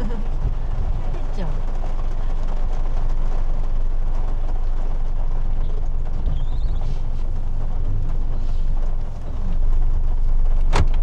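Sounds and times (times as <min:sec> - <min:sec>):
car engine rumble: 0:00.0 - 0:11.0
road noise: 0:00.0 - 0:11.0.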